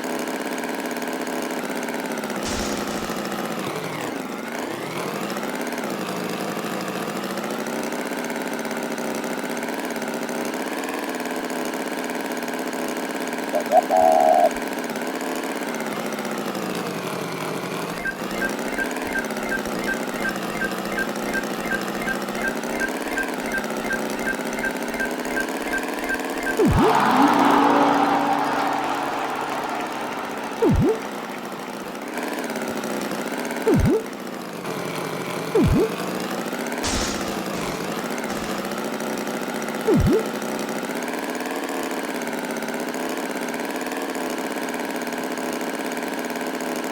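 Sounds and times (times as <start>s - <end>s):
tractor engine running: 2.4s - 4.0s, 16.7s - 33.0s, 33.6s - 39.2s
short loud tone: 18.0s - 31.8s, 36.8s - 38.8s.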